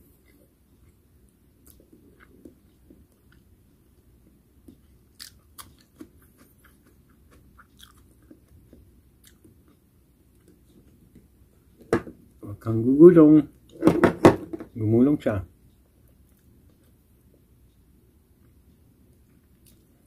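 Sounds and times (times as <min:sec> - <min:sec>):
person chewing: 0:01.6 - 0:03.5, 0:04.6 - 0:11.3.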